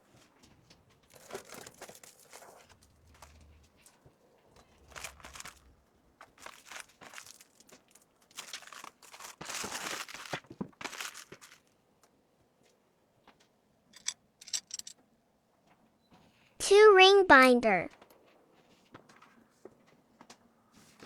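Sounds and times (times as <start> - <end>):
packaging crinkling and rustling: 0.6 - 11.8.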